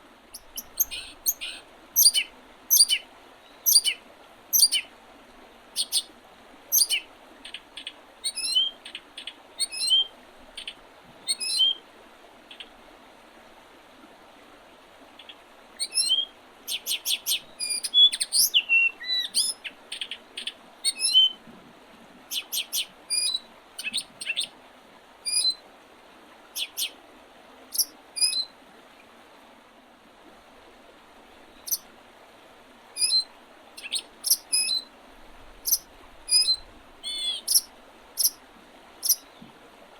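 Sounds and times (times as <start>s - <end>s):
faint steady hiss: 0.0s - 39.9s
songbirds chirping: 0.3s - 4.9s, 5.8s - 6.1s, 6.7s - 11.8s, 15.1s - 21.4s, 22.3s - 24.5s, 26.6s - 27.0s, 27.8s - 28.5s, 31.4s - 31.9s, 33.0s - 34.9s, 35.5s - 38.4s, 39.0s - 39.6s.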